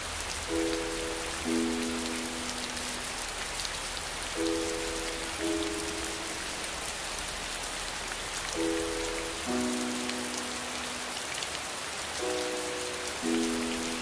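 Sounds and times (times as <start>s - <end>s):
soft held musical chords: 0.0s - 11.4s, 12.2s - 14.0s
heavy rain hissing: 0.0s - 14.0s.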